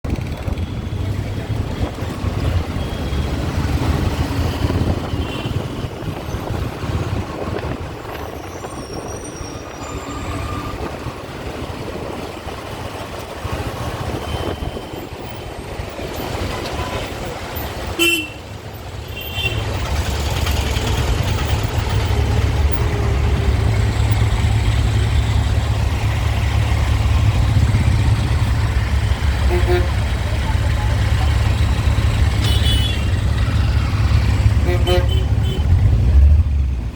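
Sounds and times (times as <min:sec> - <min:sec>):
road traffic rumble: 0:00.0 - 0:36.9
car horn toots: 0:17.9 - 0:18.4, 0:29.4 - 0:30.1, 0:32.4 - 0:33.2, 0:34.6 - 0:35.8.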